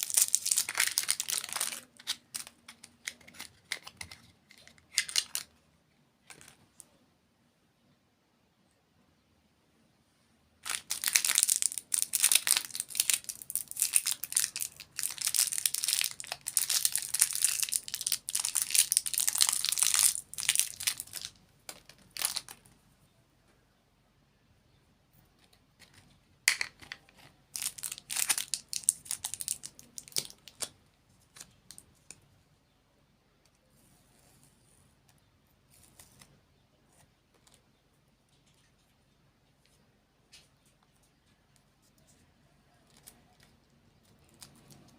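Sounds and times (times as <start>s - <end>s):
candy wrapper crinkling: 0.0s - 5.6s, 10.6s - 22.7s, 25.8s - 30.7s.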